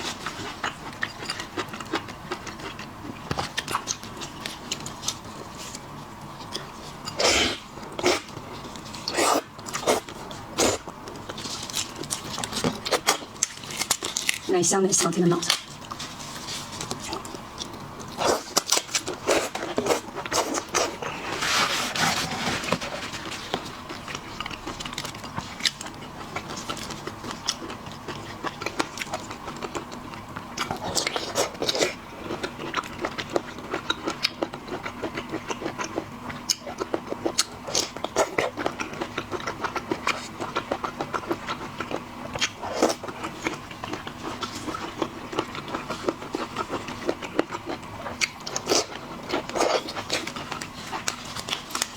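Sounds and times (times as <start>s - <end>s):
small clicks and crunches: 35.8s - 51.9s.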